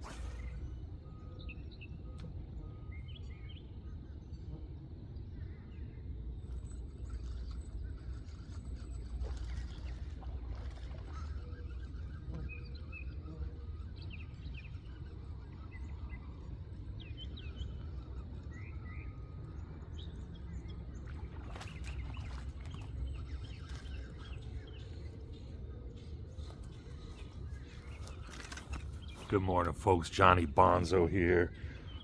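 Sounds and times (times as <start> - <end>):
low outdoor rumble: 0.0 - 32.0
bird chirps: 10.5 - 32.0.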